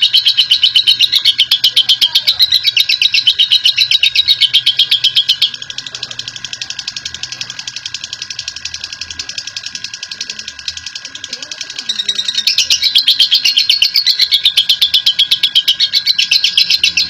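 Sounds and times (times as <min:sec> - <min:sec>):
lovebird rapid chatter: 0:00.0 - 0:17.0.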